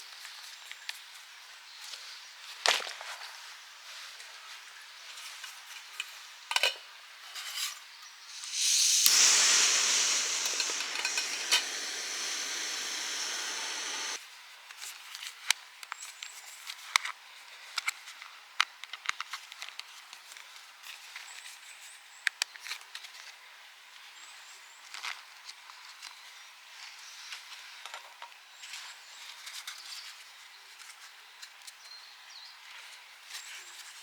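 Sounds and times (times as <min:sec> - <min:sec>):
loud rushing hiss: 0:08.3 - 0:14.2.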